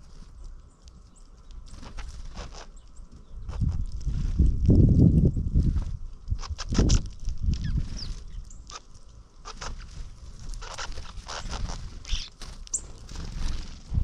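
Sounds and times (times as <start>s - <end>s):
birds chirping: 0.0s - 4.2s, 6.3s - 14.0s.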